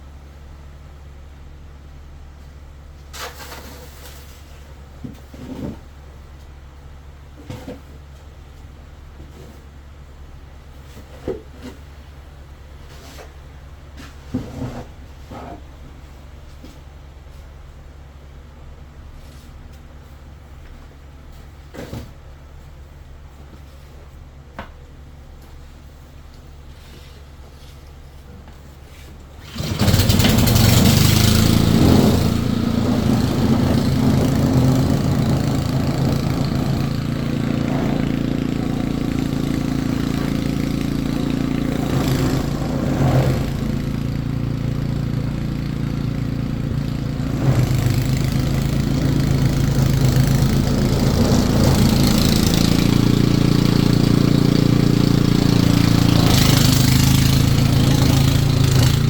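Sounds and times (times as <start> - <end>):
engine humming: 28.1 - 59.0.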